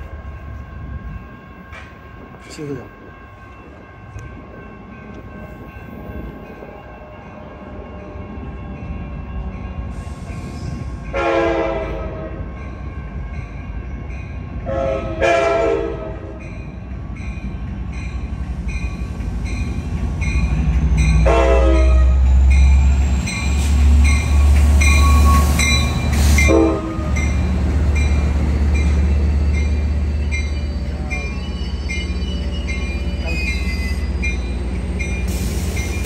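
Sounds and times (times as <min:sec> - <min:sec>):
train rumbling past: 0:00.0 - 0:36.0
train horn blasts: 0:11.1 - 0:12.5, 0:14.6 - 0:16.4, 0:21.2 - 0:22.3, 0:26.4 - 0:27.2.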